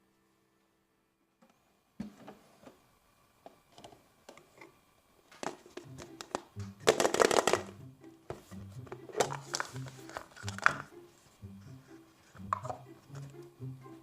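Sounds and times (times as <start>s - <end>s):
background music with steady beat: 5.7s - 14.0s
plastic toys clicking and rustling: 9.1s - 10.9s.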